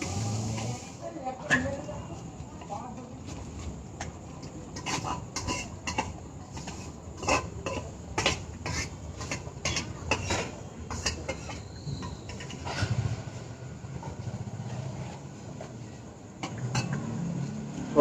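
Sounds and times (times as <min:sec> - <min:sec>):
dishes and utensils clattering: 0:04.0 - 0:13.2, 0:16.4 - 0:17.2.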